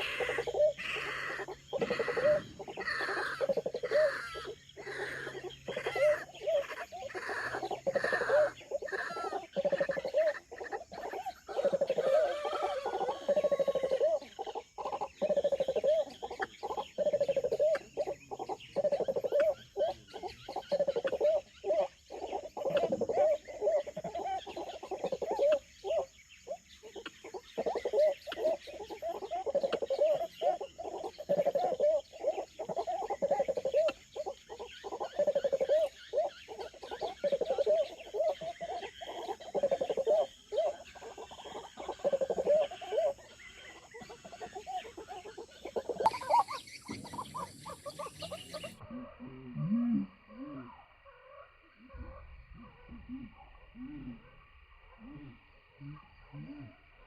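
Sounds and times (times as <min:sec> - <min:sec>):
faint high-pitched insect drone: 0:00.0 - 0:57.0
warbling animal calls: 0:00.0 - 0:57.0.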